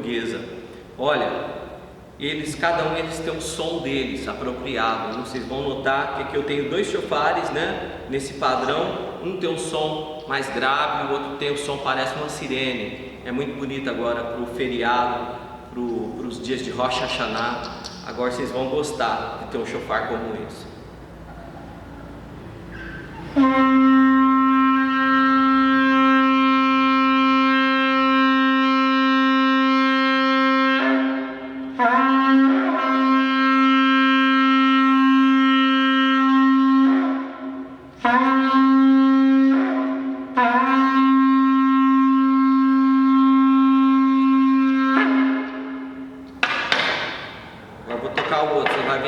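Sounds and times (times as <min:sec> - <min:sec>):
shofar blasts: 0:23.2 - 0:49.0.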